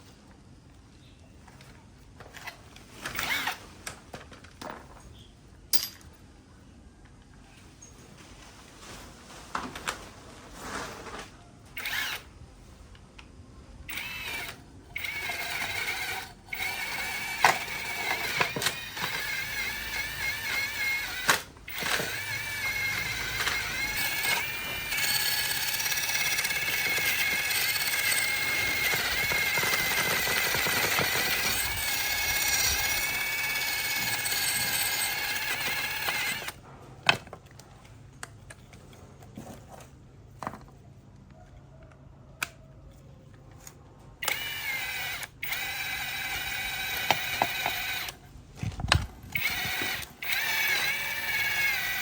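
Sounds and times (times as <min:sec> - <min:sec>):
electric power tool whining: 0:13.9 - 0:36.6, 0:44.2 - 0:48.2, 0:48.9 - 0:52.0.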